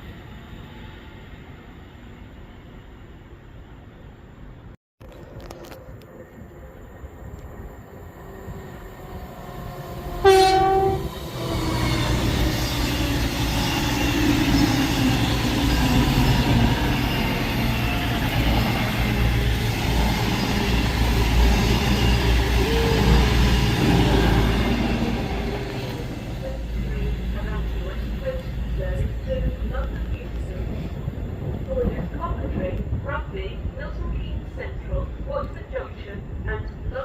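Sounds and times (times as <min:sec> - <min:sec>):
train rumbling past: 0:05.9 - 0:37.0
train horn blast: 0:10.2 - 0:11.2.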